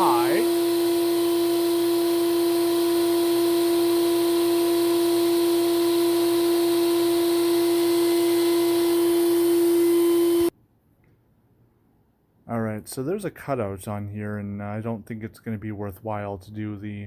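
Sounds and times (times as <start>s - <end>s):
vacuum cleaner motor whining: 0.0s - 10.5s.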